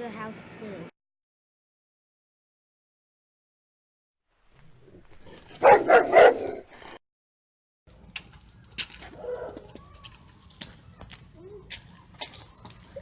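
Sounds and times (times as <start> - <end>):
dog barking: 5.5 - 6.7, 9.2 - 9.7.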